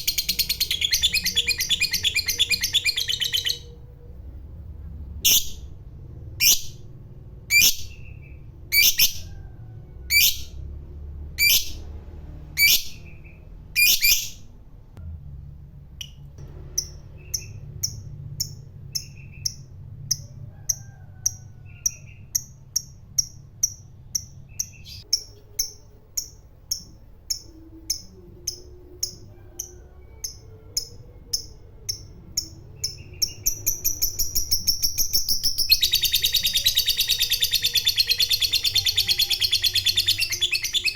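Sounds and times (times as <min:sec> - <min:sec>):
lovebird chattering trill: 0:00.0 - 0:03.8, 0:21.3 - 0:40.9.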